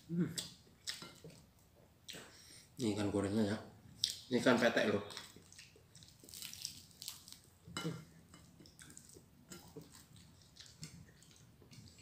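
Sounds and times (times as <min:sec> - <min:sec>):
person chewing and crunching food: 0:00.0 - 0:02.2, 0:05.1 - 0:12.0.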